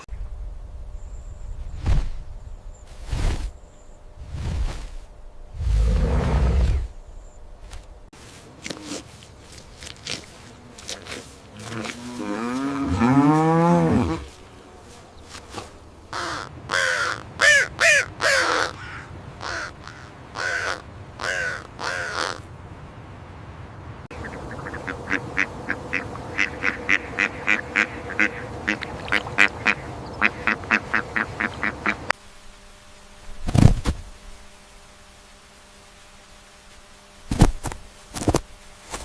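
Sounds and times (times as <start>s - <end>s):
loud harsh animal calls: 16.1s - 22.4s, 24.2s - 32.1s.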